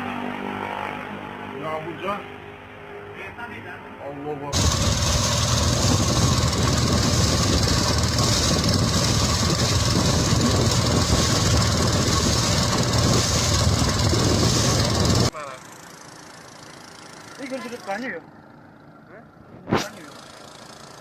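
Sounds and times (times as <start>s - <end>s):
strong wind roaring: 4.6s - 15.3s.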